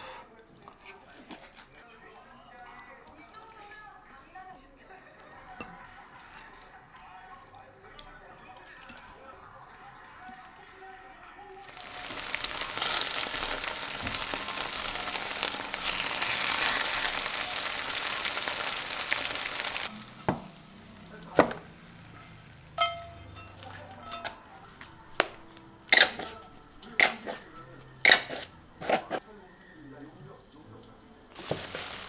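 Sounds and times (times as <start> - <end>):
food sizzling in a pan: 11.6 - 28.6, 31.2 - 32.0
spatula knocking and scraping pan: 20.1 - 20.6, 22.2 - 24.4.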